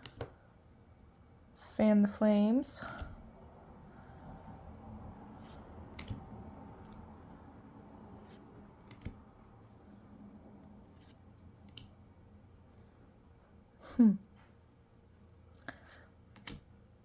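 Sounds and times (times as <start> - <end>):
cards clicking and tapping: 0.0 - 0.4, 2.3 - 3.4, 5.3 - 7.0, 8.1 - 9.3, 10.8 - 12.0, 15.6 - 16.8.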